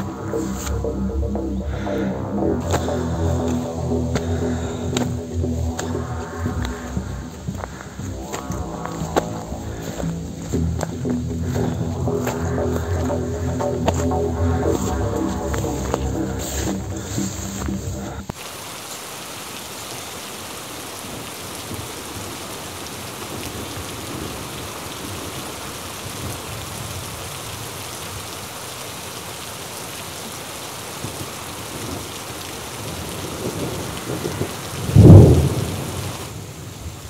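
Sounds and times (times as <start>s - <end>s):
low rumble: 0.0s - 18.3s
rain hissing on vegetation: 2.6s - 37.0s.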